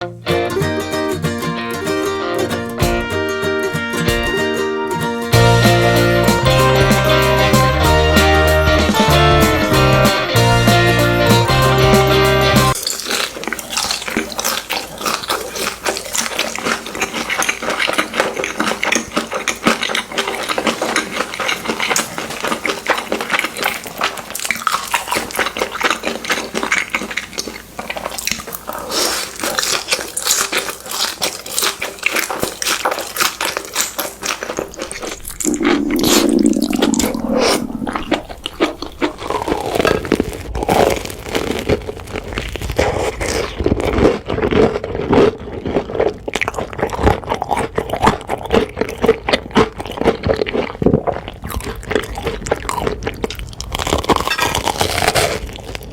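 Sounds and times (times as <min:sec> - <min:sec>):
crunching and chewing: 0:12.7 - 0:55.9
gliding tones: 0:35.0 - 0:39.6.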